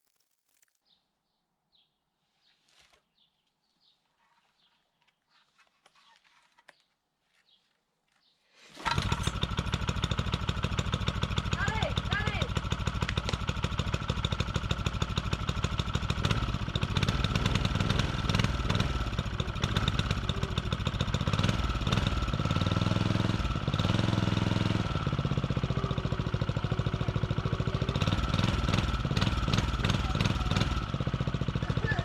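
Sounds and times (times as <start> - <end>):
plate compactor engine running: 8.8 - 32.0.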